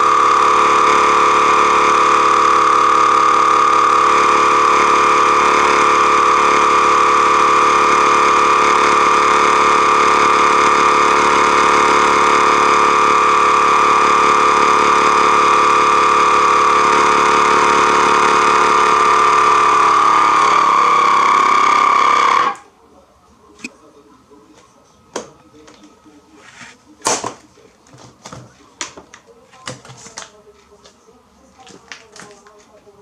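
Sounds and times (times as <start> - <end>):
vacuum sealer pump humming: 0.0 - 22.6.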